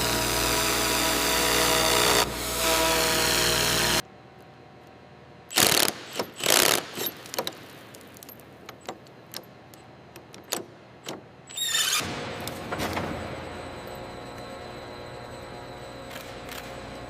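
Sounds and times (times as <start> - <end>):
machine running: 12.0 - 17.0.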